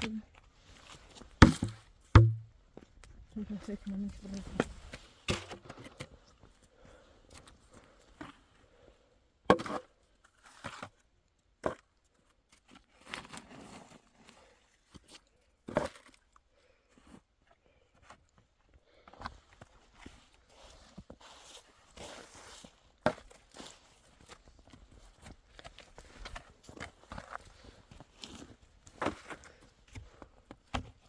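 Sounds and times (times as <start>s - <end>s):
sharp knocks: 1.4s - 2.5s.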